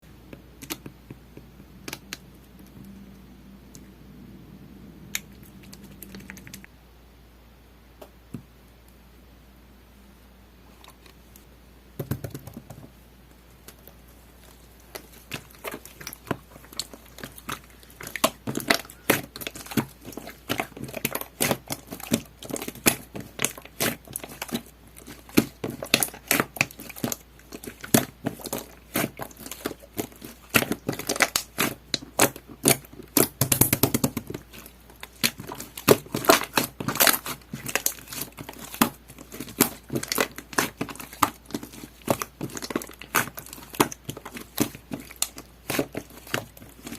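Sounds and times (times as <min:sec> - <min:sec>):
slime squished by hand: 0:14.4 - 0:46.9.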